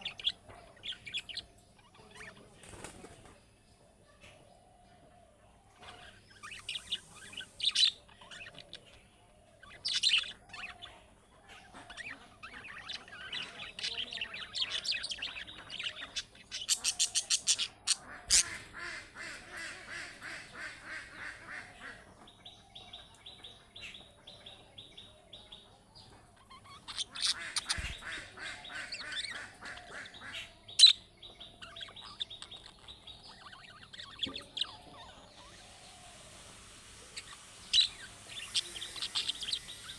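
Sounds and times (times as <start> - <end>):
budgerigar chattering: 5.9 - 9.0, 9.7 - 22.1, 26.4 - 39.9.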